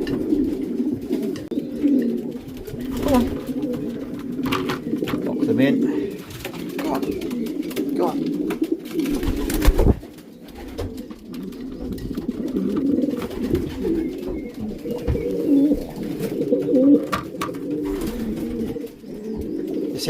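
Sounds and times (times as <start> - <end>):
pigeons cooing: 0.0 - 20.0.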